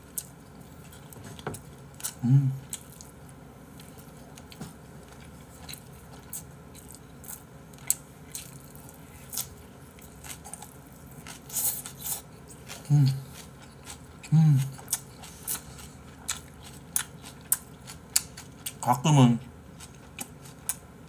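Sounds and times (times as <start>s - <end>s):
person chewing food: 0.0s - 21.0s
person humming: 2.2s - 2.6s, 12.8s - 13.3s, 14.3s - 14.8s.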